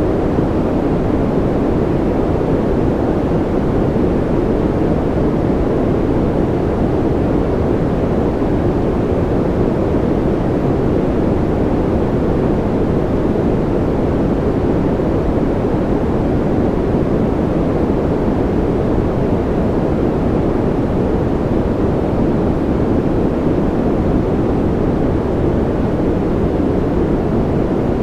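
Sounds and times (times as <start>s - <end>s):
deep white noise: 0.0s - 28.0s.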